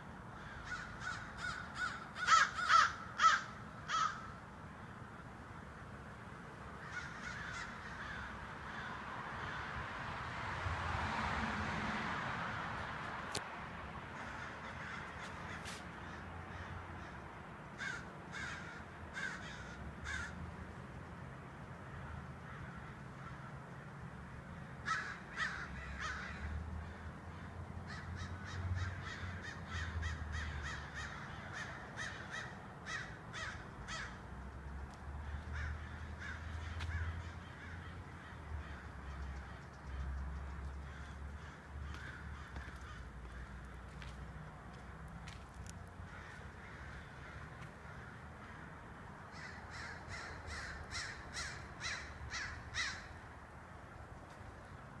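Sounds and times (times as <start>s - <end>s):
birds calling rapidly: 49.3s - 53.2s.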